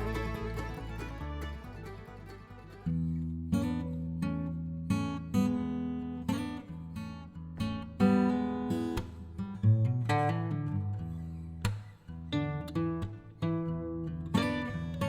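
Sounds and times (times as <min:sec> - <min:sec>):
acoustic guitar strumming chords: 0:00.0 - 0:04.1.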